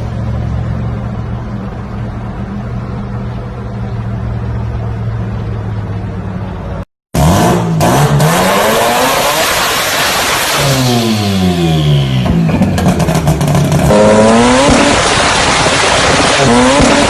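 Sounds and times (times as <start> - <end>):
car engine droning: 0.0 - 17.0
car revving hard: 7.2 - 17.0.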